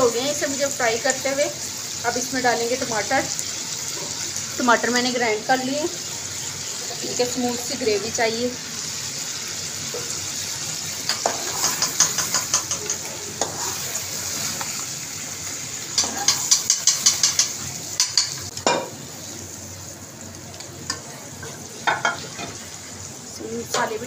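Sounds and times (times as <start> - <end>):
food sizzling in oil: 0.0 - 24.0
spatula knocking on pan: 11.1 - 13.6, 16.0 - 18.9
spatula scraping a pan: 11.1 - 14.7, 16.0 - 18.3.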